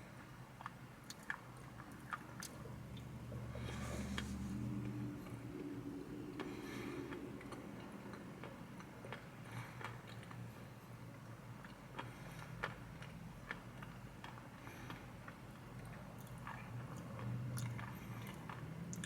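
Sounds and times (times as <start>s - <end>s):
low steady hum: 0.0s - 19.0s
chewing mouth clicks: 0.6s - 3.1s, 11.6s - 19.0s.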